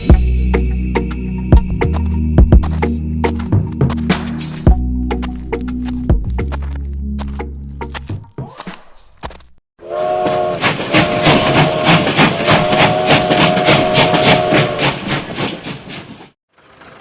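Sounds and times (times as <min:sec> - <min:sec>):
rhythmic chugging: 0:10.6 - 0:15.2.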